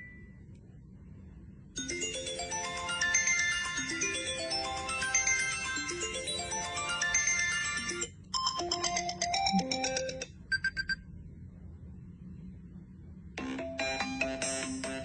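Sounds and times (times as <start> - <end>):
bell-like melodic notes: 1.8 - 8.1.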